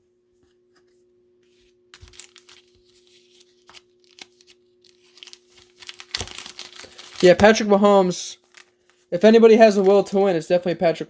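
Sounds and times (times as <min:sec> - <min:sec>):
card pack wrapper crinkling: 0:01.9 - 0:10.2.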